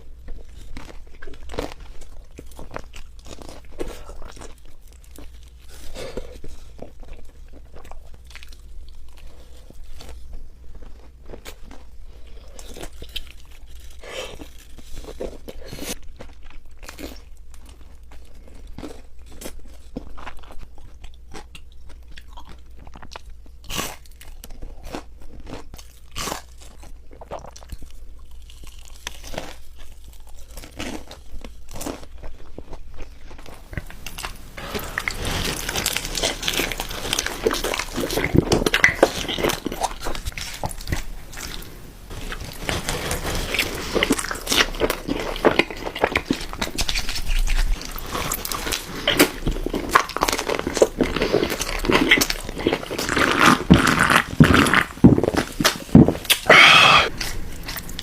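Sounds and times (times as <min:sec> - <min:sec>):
person chewing crunchy food: 0:00.0 - 0:58.0
mouth clicks: 0:56.3 - 0:57.2.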